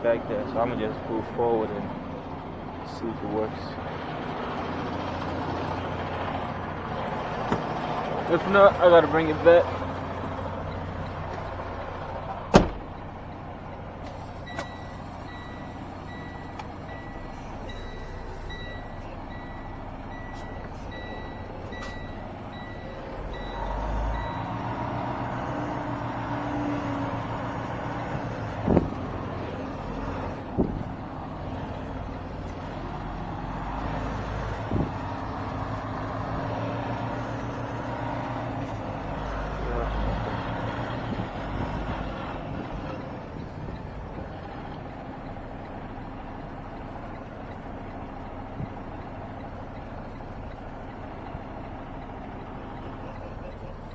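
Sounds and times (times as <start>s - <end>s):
diesel truck engine running: 0.0s - 53.9s
sharp knocks: 7.4s - 7.8s, 28.6s - 29.0s.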